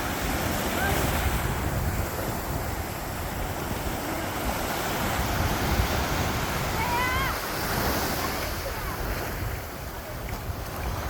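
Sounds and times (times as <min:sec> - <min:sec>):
sea surf on sandy beach: 0:00.0 - 0:11.0
wind buffeting microphone: 0:00.0 - 0:11.0.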